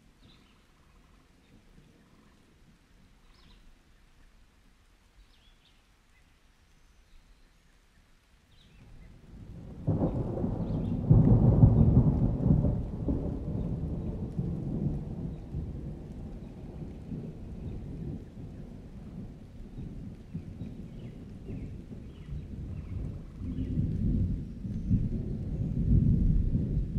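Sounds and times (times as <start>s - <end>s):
rain: 0.0s - 26.9s
thunder rumbling: 9.0s - 26.9s.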